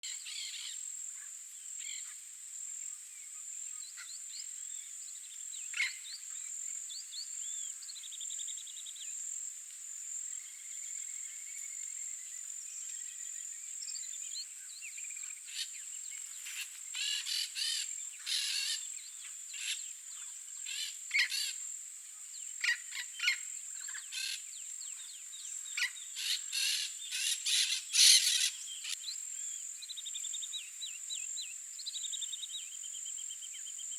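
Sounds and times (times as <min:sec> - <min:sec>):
wild birds calling: 0:15.2 - 0:21.6, 0:22.6 - 0:29.0.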